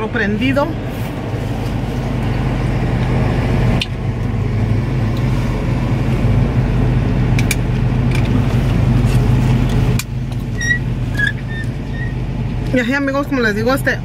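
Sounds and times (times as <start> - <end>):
vehicle engine idling: 0.0 - 14.0
seat belt buckle click: 7.4 - 8.4.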